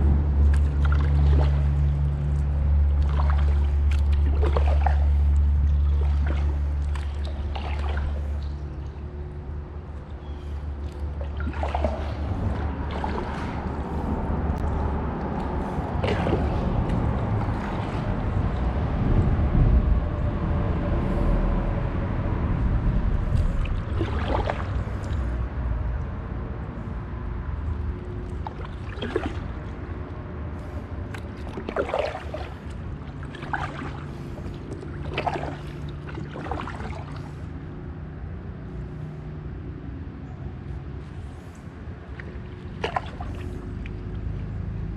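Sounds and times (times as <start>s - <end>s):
paddle splashing in water: 0.0s - 9.4s, 10.0s - 19.3s, 23.2s - 25.4s, 28.2s - 30.0s, 30.6s - 37.5s, 41.0s - 44.4s
steady low rumble: 0.0s - 44.9s.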